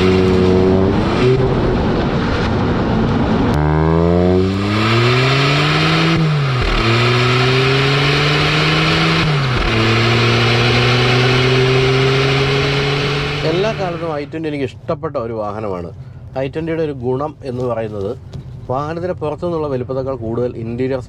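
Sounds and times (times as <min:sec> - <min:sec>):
gear upshifts: 0:00.0 - 0:14.3
car engine accelerating hard: 0:00.0 - 0:14.4.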